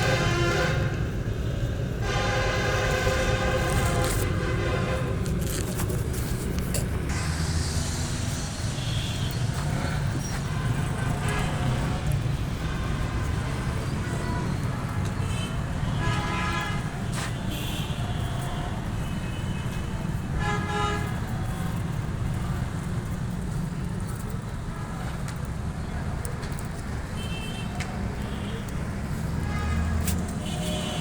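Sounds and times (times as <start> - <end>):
steady low rumble: 1.0 - 13.8.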